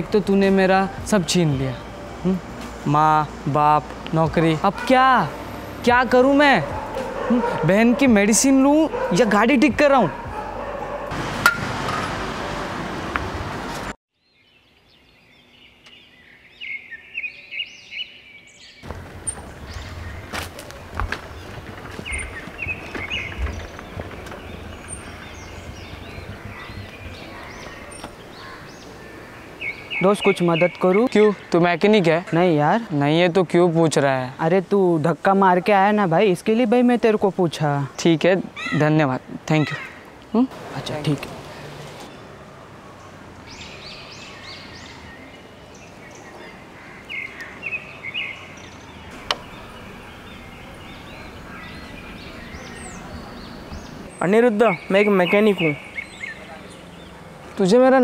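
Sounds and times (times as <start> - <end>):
birds chirping: 0.0 - 12.2, 14.1 - 58.0
low outdoor rumble: 18.9 - 28.4.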